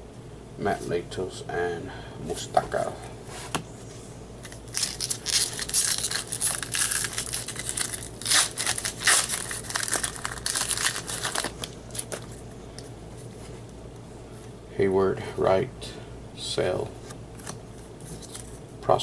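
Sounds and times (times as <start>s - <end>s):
wrapper tearing and crinkling: 4.4s - 12.4s, 17.4s - 18.6s.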